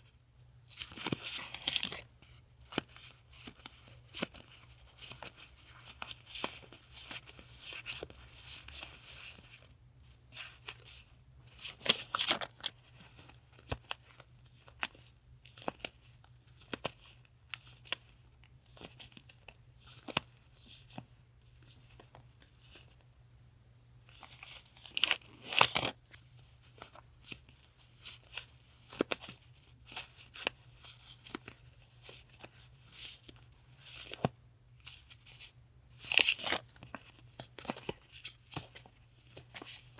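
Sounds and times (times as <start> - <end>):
faint refrigerator hum: 0.0 - 39.9
paper crinkling and tearing: 11.6 - 13.0, 24.2 - 26.0, 36.0 - 39.9.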